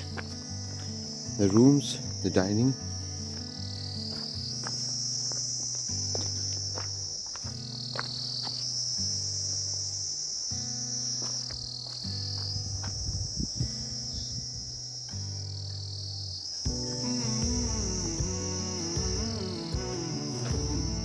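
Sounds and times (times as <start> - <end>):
high-pitched insect chorus: 0.0 - 21.0
low sustained music notes: 13.5 - 21.0.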